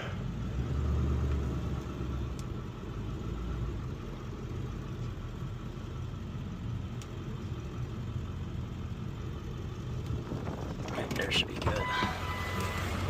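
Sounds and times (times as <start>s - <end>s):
vehicle engine idling: 0.0s - 13.0s
faint light ticks: 2.3s - 2.5s.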